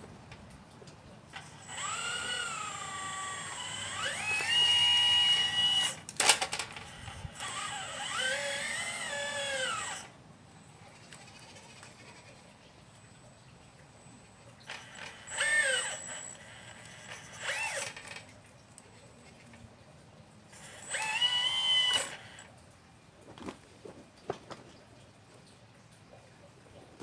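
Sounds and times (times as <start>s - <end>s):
electric motors whining: 1.3s - 10.2s, 13.9s - 18.3s, 20.5s - 22.5s.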